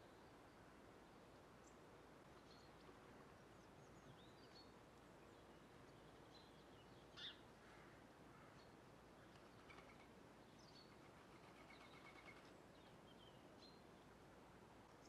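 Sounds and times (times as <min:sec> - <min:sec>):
faint outdoor hiss: 0:00.0 - 0:15.0
small birds chirping: 0:02.4 - 0:07.4.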